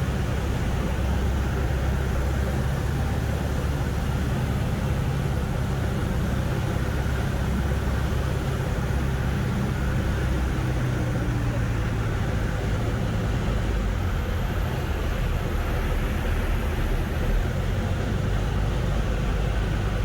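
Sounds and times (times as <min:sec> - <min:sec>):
aircraft piston engine droning: 0:00.0 - 0:20.0.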